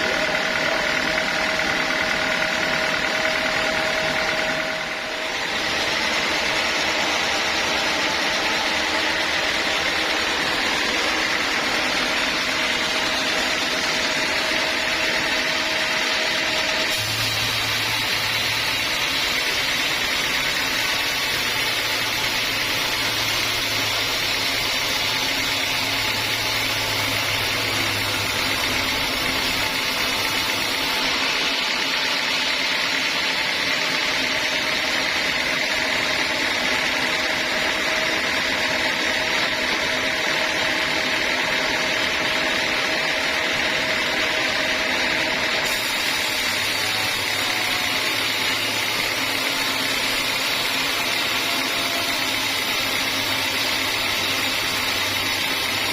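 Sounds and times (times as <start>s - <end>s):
low motor hum: 0.0s - 32.4s
saw blade cutting log: 0.0s - 43.0s, 43.6s - 55.9s.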